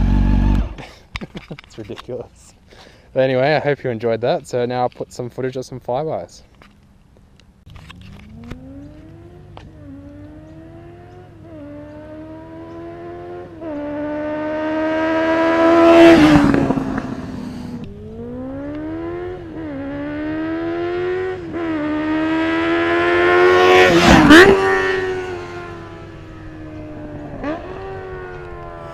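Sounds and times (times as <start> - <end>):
motorcycle accelerating past: 0.0 - 0.8, 7.9 - 28.9.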